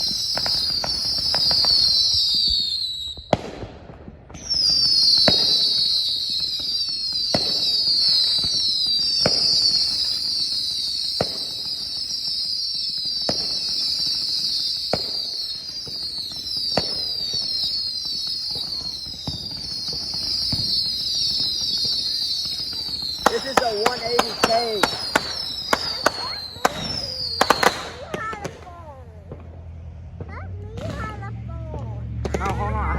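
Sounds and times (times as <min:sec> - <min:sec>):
firework whistles hissing: 0:00.0 - 0:28.9
firework bangs: 0:00.0 - 0:32.9.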